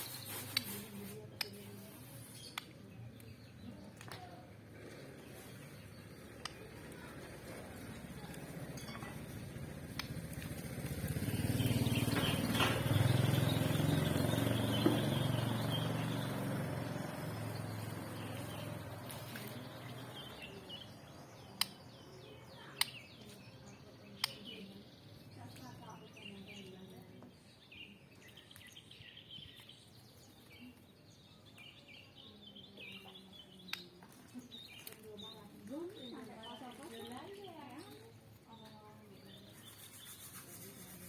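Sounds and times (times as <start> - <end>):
vehicle engine passing by: 6.9 - 21.1.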